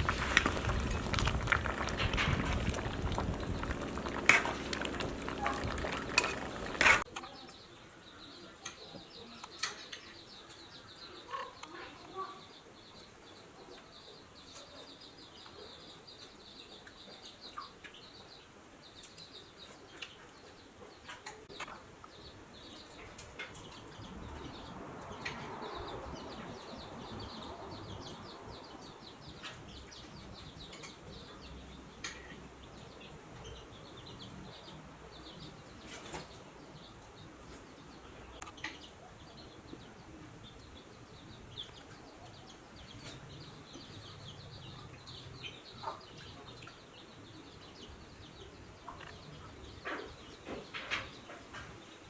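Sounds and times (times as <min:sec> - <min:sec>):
rustling noise: 0:00.0 - 0:07.1.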